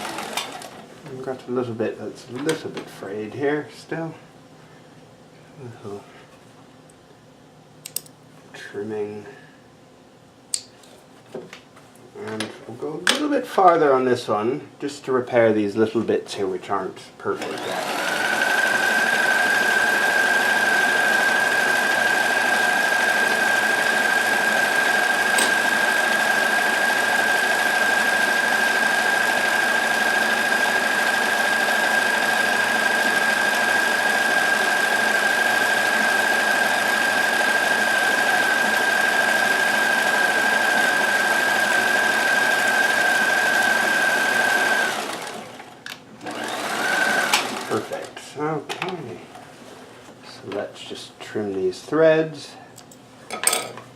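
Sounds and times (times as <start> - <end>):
sewing machine running: 0.0 - 0.8, 17.4 - 48.1.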